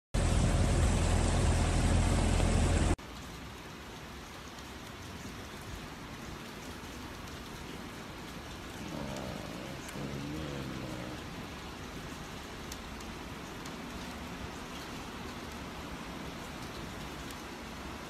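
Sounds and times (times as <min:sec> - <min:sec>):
deep rumble on microphone: 0:00.2 - 0:03.0
heavy rain roaring: 0:00.2 - 0:18.0
steady hiss of rain: 0:00.2 - 0:18.0.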